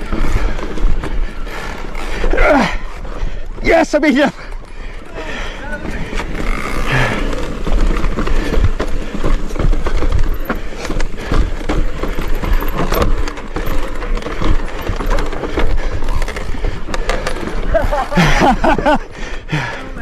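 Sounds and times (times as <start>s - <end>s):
bike rattling over bumps: 0.0s - 20.0s.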